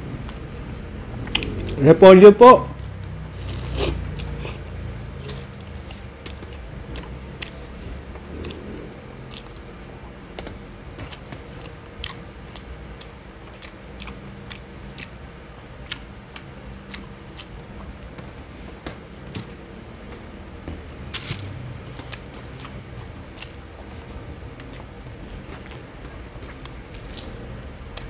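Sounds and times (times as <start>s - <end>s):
faint steady hum: 0.0s - 28.0s
wet chewing mouth clicks: 1.3s - 1.8s, 11.1s - 15.1s.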